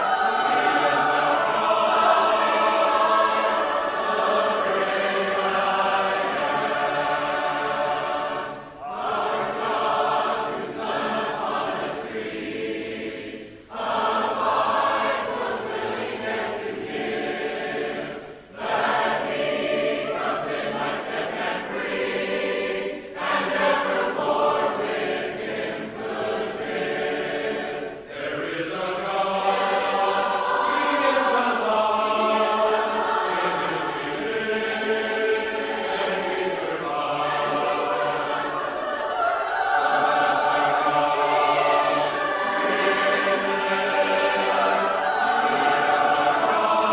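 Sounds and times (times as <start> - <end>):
choir singing a hymn a cappella: 0.0 - 46.9.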